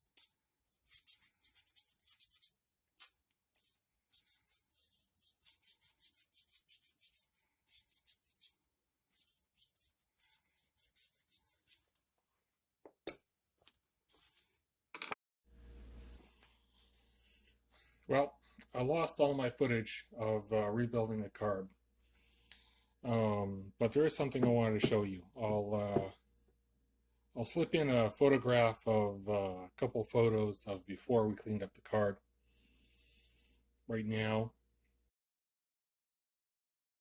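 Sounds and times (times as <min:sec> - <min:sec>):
brush scrubbing: 0:00.0 - 0:12.0.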